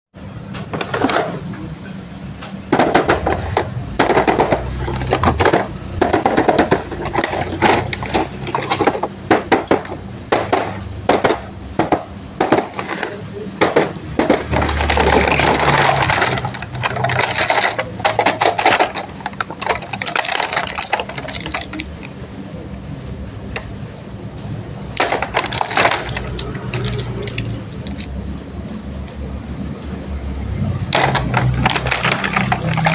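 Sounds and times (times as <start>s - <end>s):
plastic and cardboard packaging rustling: 2.9s - 22.4s, 24.9s - 28.3s, 30.9s - 32.9s.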